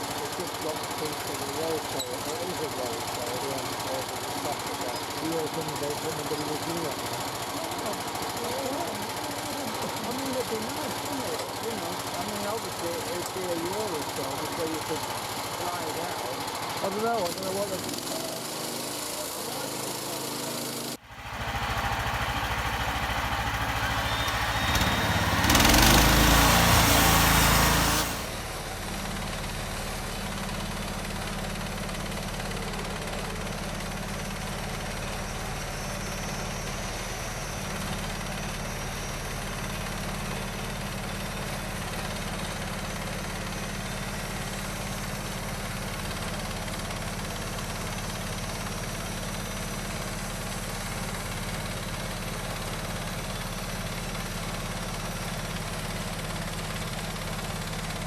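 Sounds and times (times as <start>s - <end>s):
bandsaw mill engine running: 0.0s - 58.0s.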